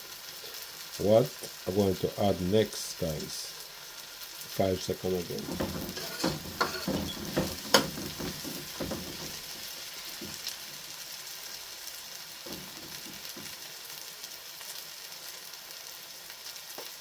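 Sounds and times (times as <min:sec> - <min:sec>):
chicken sizzling in hot oil: 0:00.0 - 0:17.0
short knocks: 0:05.4 - 0:09.6.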